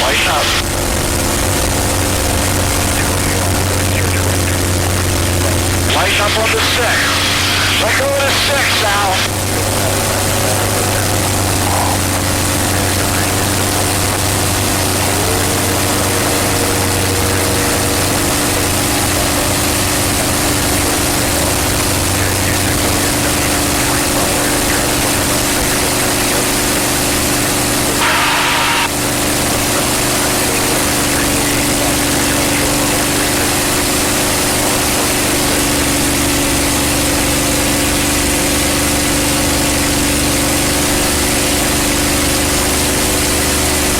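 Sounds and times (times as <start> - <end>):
high-pitched noise burst: 0.0 - 30.4
aircraft engine droning: 0.0 - 43.9.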